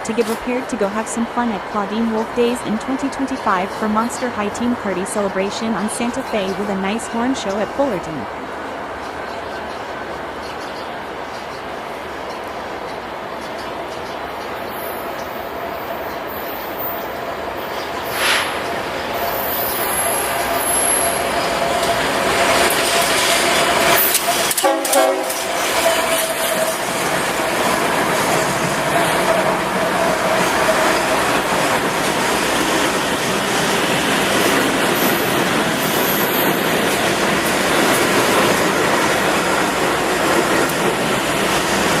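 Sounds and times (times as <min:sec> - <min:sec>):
train wheels clattering on rails: 0:08.8 - 0:42.0.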